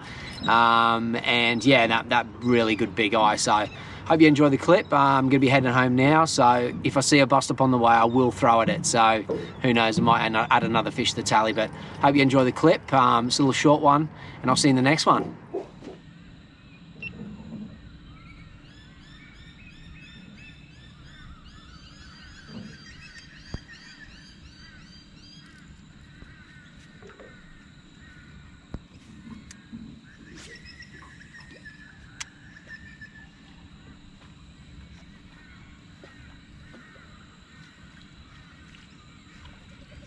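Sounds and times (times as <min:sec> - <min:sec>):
birds chirping: 0:00.0 - 0:40.0
faint clicks: 0:25.4 - 0:30.0.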